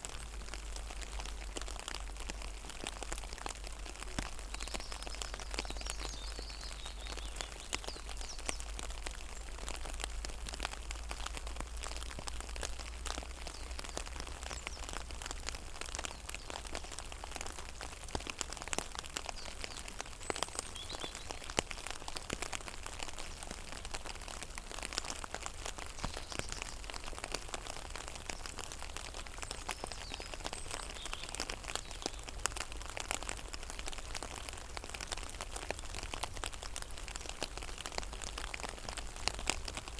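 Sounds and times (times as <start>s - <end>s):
rain pattering on a pond: 0.0s - 39.9s.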